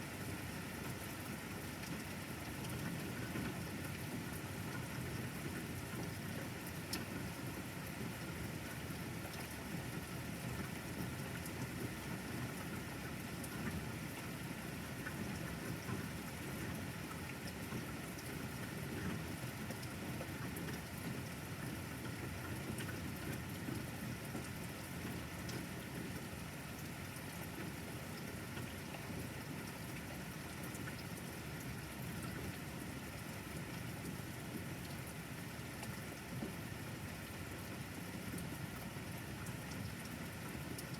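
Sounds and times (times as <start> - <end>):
steady rain falling: 0.2 - 40.9.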